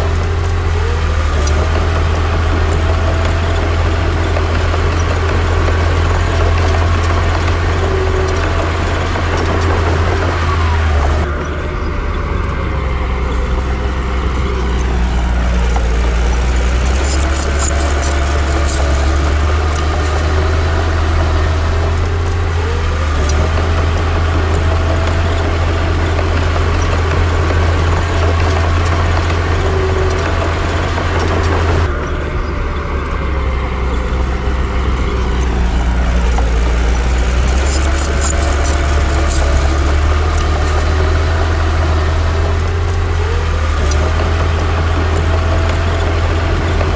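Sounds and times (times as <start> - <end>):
diesel machinery engine under load: 0.0 - 46.9
metallic clanks: 12.4 - 20.7, 33.8 - 43.3.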